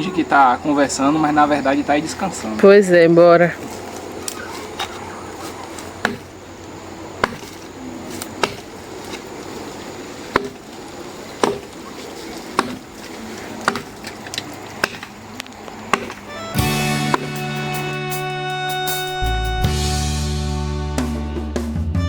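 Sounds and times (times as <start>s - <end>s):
axe chopping wood: 6.0s - 6.3s, 7.2s - 9.3s, 10.3s - 10.8s, 11.4s - 11.9s, 12.5s - 12.9s, 13.6s - 14.0s, 14.8s - 15.2s, 15.9s - 17.4s.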